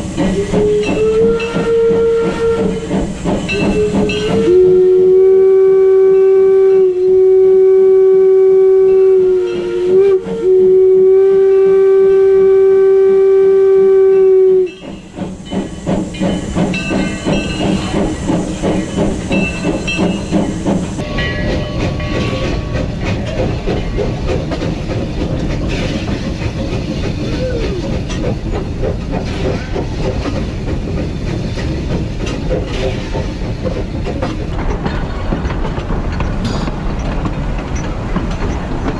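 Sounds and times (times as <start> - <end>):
train clattering rhythmically: 0.0 - 38.9
steam locomotive whistle: 0.2 - 15.0.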